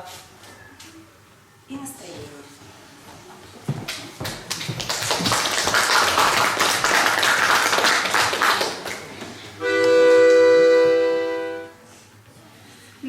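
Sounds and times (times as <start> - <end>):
audience applauding: 3.9 - 9.4
accordion held chord: 9.6 - 11.9.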